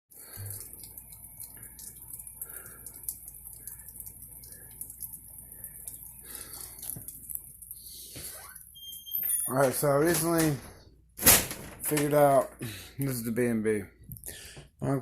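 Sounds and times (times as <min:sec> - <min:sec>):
irregular drips and taps: 0:00.1 - 0:09.4.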